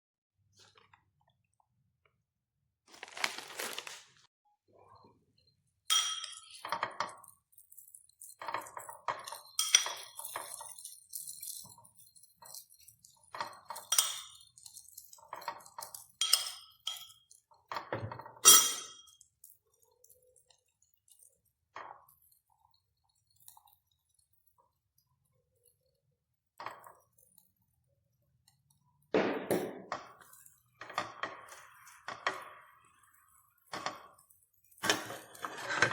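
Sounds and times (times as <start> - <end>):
tableware clinking: 5.9 - 7.4, 8.3 - 11.7, 13.3 - 14.6, 15.2 - 19.2.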